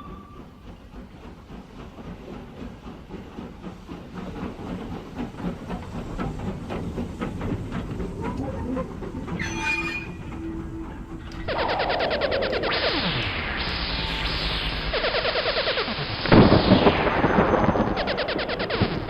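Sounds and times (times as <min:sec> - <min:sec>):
train rolling on rails: 0:00.0 - 0:19.0
loud sound with falling tones: 0:11.1 - 0:19.0.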